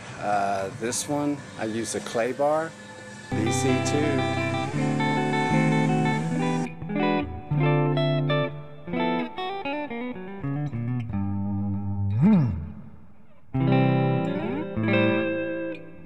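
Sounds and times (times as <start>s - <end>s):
plucked guitar music: 3.3s - 16.0s.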